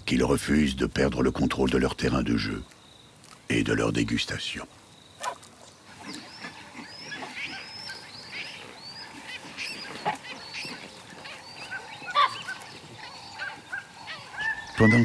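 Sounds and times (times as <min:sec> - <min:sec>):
chorus of birds chirping: 0:00.0 - 0:15.0.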